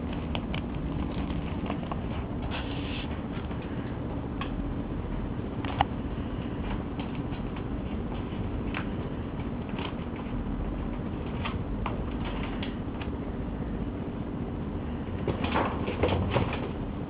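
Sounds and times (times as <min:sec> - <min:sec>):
kitten paws tapping and scuffling: 0:00.0 - 0:04.6, 0:05.2 - 0:13.2
low background hum: 0:00.0 - 0:17.0.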